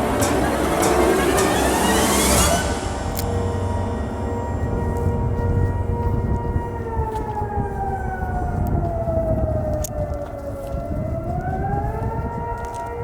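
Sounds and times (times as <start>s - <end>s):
low rumble: 0.0s - 9.7s
siren-like wailing tone: 0.0s - 13.0s.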